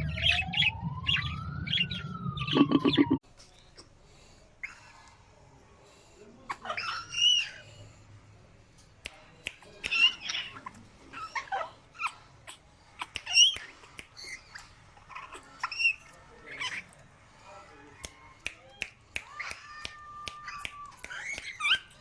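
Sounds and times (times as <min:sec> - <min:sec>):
pet birds squawking: 0:00.0 - 0:03.2.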